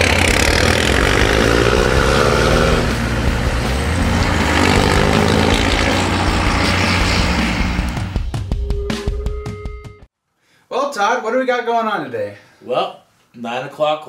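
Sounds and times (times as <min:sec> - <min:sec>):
diesel engine accelerating: 0:00.0 - 0:08.4.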